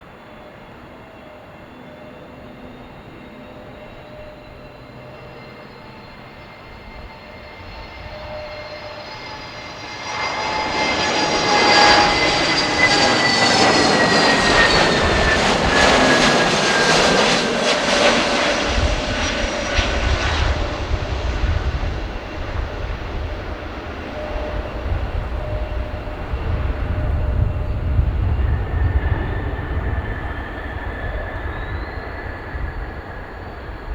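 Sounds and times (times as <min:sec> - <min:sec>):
jet engine whine: 0:00.0 - 0:33.9
deep jet rumble: 0:06.3 - 0:33.9.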